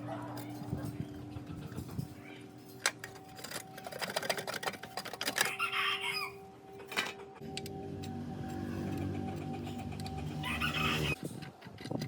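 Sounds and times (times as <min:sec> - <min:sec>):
chicken calling: 0:05.4 - 0:06.8, 0:09.0 - 0:11.2.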